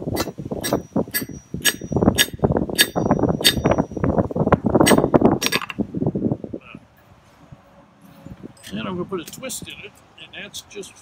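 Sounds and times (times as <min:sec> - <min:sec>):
hammer striking on anvil: 0:00.2 - 0:03.9.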